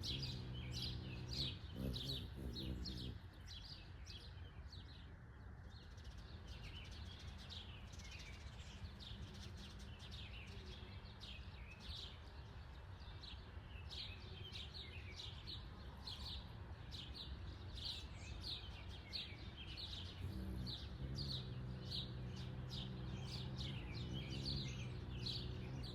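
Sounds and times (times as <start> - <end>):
low mechanical hum: 0.0 - 3.3
low outdoor rumble: 0.0 - 3.3, 20.0 - 25.9
birds chirping: 0.0 - 5.0, 5.7 - 25.9.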